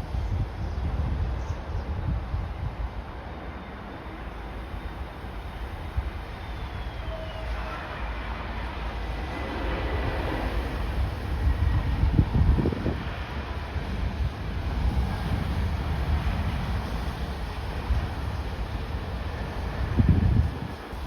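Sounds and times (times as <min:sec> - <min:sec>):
wind buffeting microphone: 0:00.0 - 0:03.6, 0:08.6 - 0:21.0
jet engine whine: 0:00.0 - 0:21.0.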